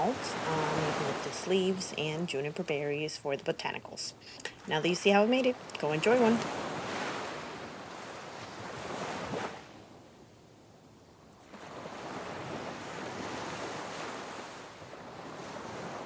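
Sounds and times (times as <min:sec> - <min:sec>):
water rushing: 0:00.0 - 0:03.6, 0:04.2 - 0:07.6.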